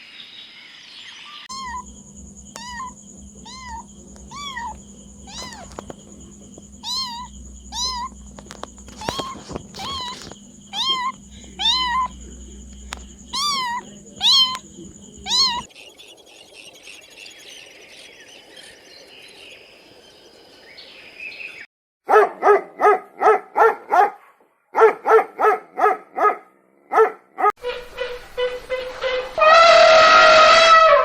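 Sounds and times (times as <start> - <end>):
cat meowing: 1.5 - 1.9, 2.5 - 6.0, 6.8 - 12.2, 13.3 - 14.6, 15.2 - 15.7
dog yapping: 1.5 - 1.9, 2.5 - 6.0, 6.8 - 12.2, 12.9 - 14.6, 15.2 - 15.7.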